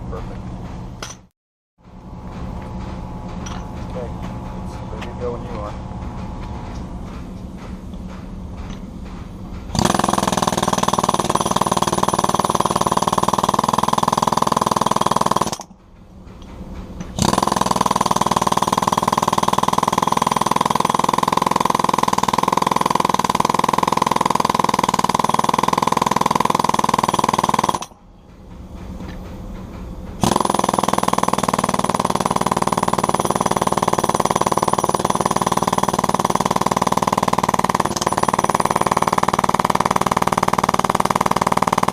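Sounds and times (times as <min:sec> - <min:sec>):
jackhammer chiselling concrete: 0:09.7 - 0:15.7, 0:17.2 - 0:28.0, 0:30.2 - 0:41.9.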